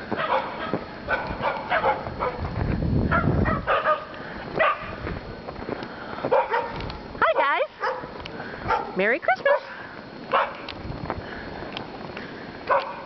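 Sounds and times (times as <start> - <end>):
dogs barking: 0.1 - 2.5, 3.1 - 5.0, 6.3 - 10.7, 12.6 - 13.0.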